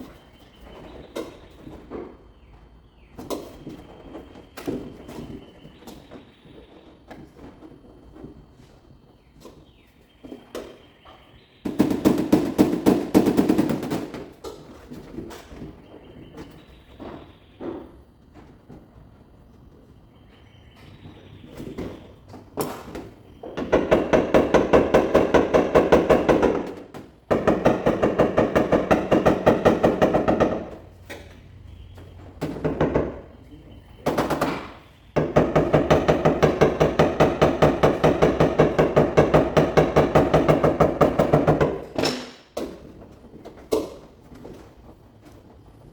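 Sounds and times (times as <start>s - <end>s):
rapid tapping on sheet metal: 11.6s - 15.0s, 22.6s - 31.3s, 34.0s - 42.8s
scattered knocks: 20.8s - 43.0s.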